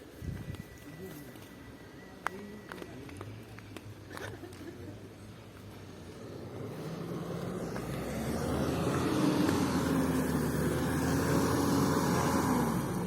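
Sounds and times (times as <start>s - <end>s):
truck engine under load: 6.0s - 13.0s.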